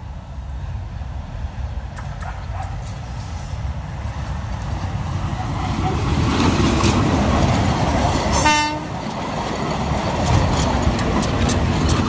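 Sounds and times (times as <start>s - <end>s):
locomotive engine and wheel rumble: 0.0s - 12.0s
train horn toot: 8.3s - 8.9s.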